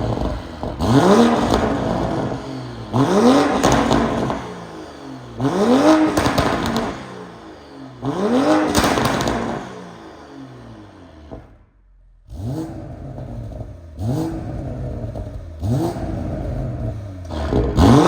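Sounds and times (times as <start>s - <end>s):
exhaust crackles and pops: 0.0s - 2.4s, 6.1s - 7.0s, 11.3s - 18.0s
car engine revving: 0.0s - 18.0s.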